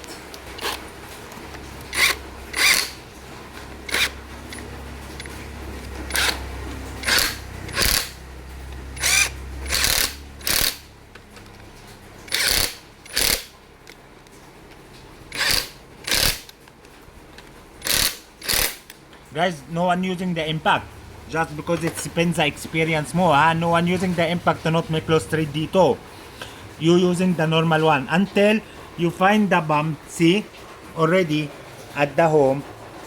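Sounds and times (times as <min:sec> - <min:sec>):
low steady hum: 0:00.0 - 0:33.0
ratchet wrench turning bolt: 0:00.6 - 0:00.8, 0:01.8 - 0:03.0, 0:03.8 - 0:05.3, 0:06.0 - 0:06.4, 0:07.0 - 0:08.2, 0:09.0 - 0:10.9, 0:12.3 - 0:13.5, 0:15.3 - 0:16.6, 0:17.8 - 0:19.0.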